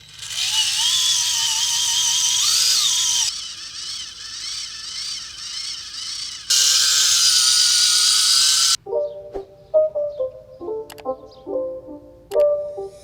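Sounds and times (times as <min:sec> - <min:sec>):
small electric motor whining: 0:00.0 - 0:08.8.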